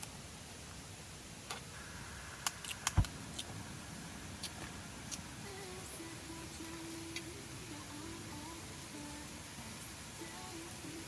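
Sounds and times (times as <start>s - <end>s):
loud thud: 2.9s - 3.2s.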